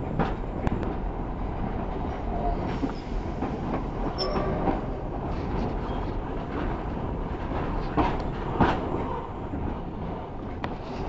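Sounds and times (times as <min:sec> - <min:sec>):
train carriage rumbling on track: 0:00.0 - 0:11.0
train wheel squeal: 0:02.4 - 0:06.2.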